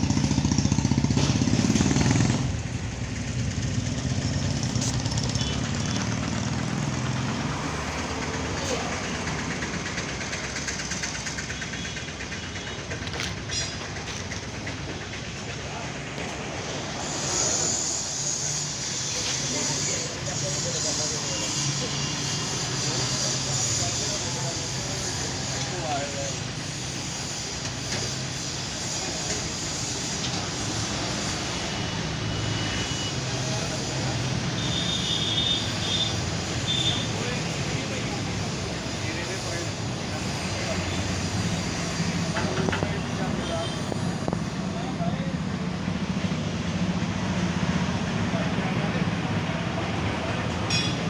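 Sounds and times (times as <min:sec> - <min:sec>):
tractor engine running: 0:00.0 - 0:16.5
tractor diesel engine running: 0:00.0 - 0:51.0
high whistle-like tone: 0:34.6 - 0:37.1.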